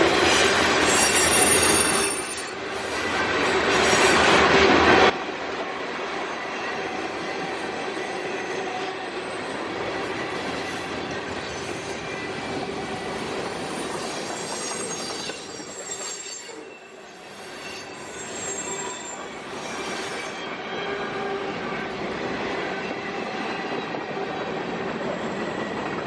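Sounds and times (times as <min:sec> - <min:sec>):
high wheel squeal: 0:00.0 - 0:04.3, 0:13.0 - 0:21.9
freight train rumbling on rails: 0:00.0 - 0:26.0.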